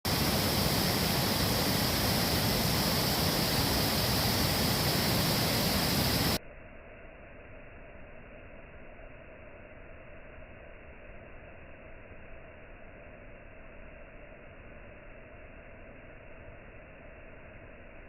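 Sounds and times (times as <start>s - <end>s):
waterfall rushing: 0.1s - 6.4s.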